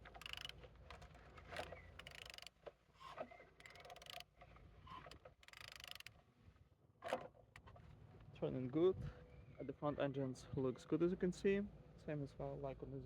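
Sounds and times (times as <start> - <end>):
ratchet wrench clicking: 0.0 - 0.5, 2.0 - 2.5, 3.6 - 4.2, 5.4 - 6.1.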